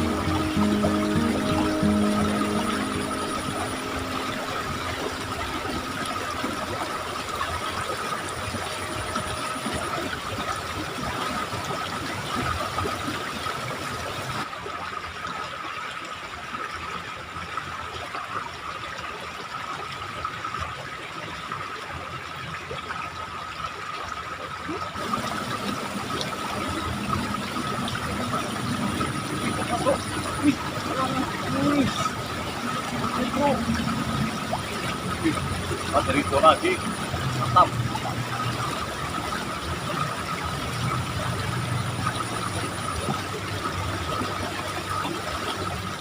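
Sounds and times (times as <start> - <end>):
high thin tone: 0.0 - 11.2
water rushing in a ditch: 0.0 - 46.0.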